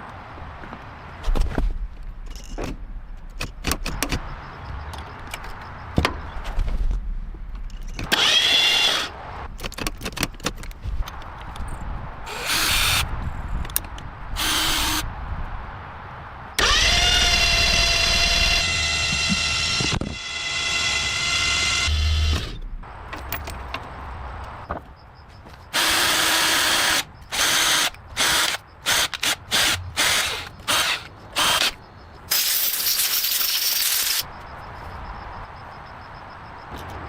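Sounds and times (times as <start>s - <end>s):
power tool whining: 16.6s - 22.6s.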